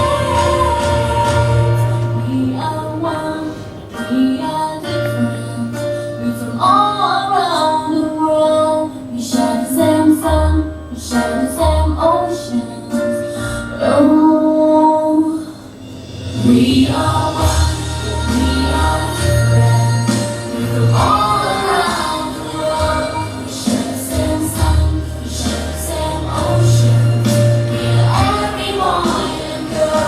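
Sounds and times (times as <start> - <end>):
instrumental backing with bass: 0.0 - 7.1, 15.6 - 30.0
woman singing: 0.0 - 15.7, 16.4 - 30.0.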